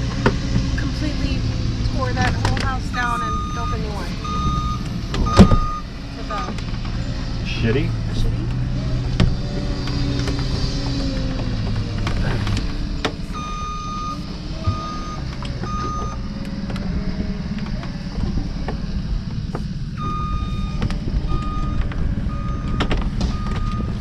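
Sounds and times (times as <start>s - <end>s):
low engine rumble: 0.0s - 24.0s
electronic warning beeps: 2.9s - 6.6s, 13.3s - 16.3s, 20.0s - 24.0s.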